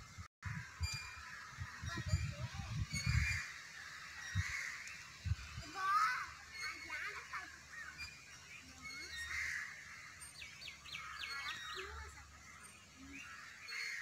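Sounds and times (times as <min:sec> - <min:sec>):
birds chirping and calling: 0:00.5 - 0:14.0.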